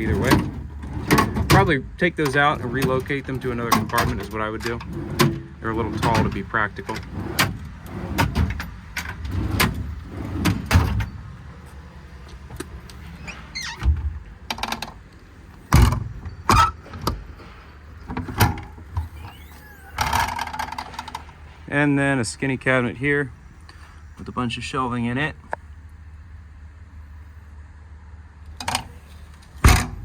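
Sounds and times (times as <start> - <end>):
metal compartment doors knocking: 29.6 - 30.0.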